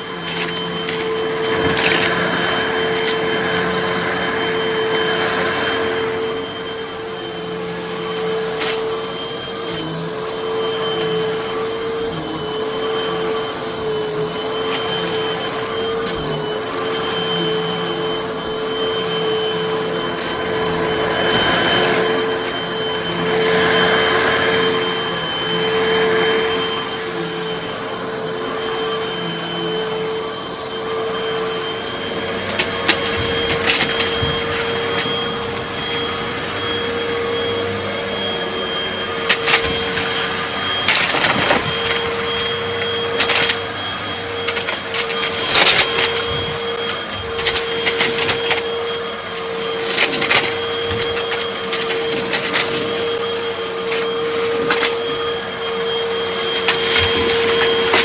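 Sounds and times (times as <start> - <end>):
debris crackling in vacuum: 0.0 - 7.3, 18.7 - 24.8, 32.0 - 58.0
vacuum cleaner running: 0.0 - 58.0.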